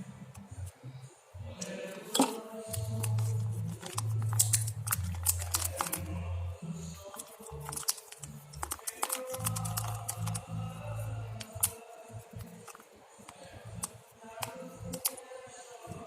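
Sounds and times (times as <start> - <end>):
stirrer tapping container: 1.6 - 6.2, 7.0 - 11.8.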